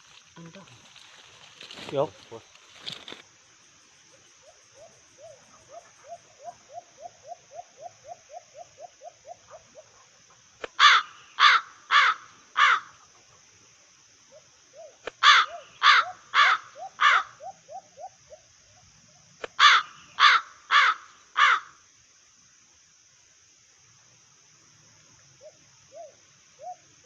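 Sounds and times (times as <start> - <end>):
crow cawing: 10.8 - 12.9, 15.2 - 17.4, 19.6 - 21.8.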